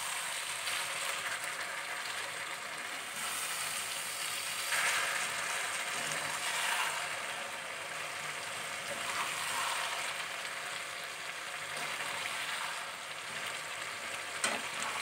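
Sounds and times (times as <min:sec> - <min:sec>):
eggplant sizzling in oil: 0:00.0 - 0:15.0
spatula stirring in pan: 0:03.1 - 0:15.0.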